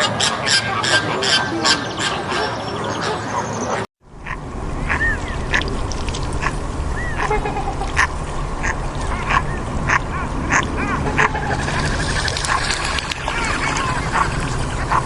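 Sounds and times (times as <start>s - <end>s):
low background rumble: 4.0s - 15.0s
animal arching cries: 4.2s - 15.0s.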